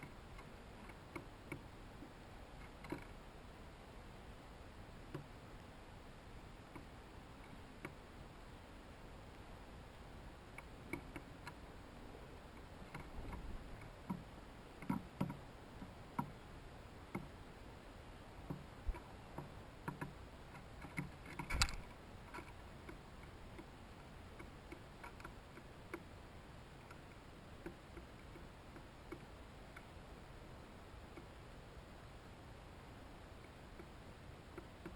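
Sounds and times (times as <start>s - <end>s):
pecking clicks and taps: 0.0s - 1.7s, 2.6s - 3.1s, 6.6s - 8.0s, 10.5s - 11.6s, 12.6s - 16.4s, 17.1s - 17.3s, 18.5s - 26.1s, 26.8s - 29.9s, 33.4s - 34.9s.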